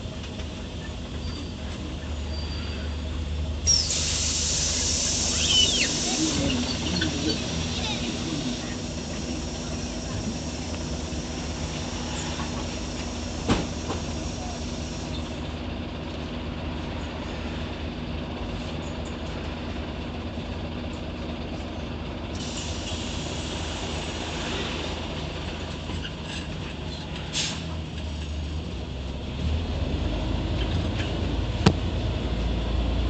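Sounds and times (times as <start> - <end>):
bus diesel engine running: 0.0 - 33.0
compressed air hiss: 3.7 - 15.2.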